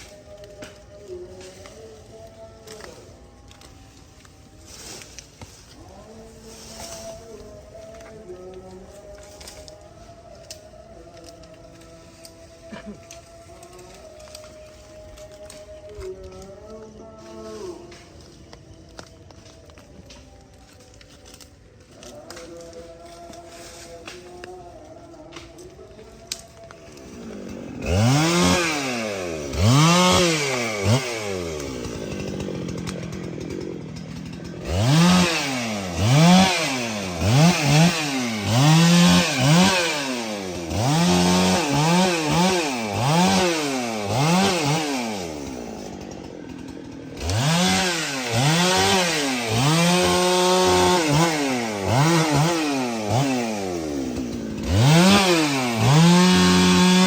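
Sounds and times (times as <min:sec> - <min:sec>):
chainsaw revving: 0:26.2 - 0:57.0.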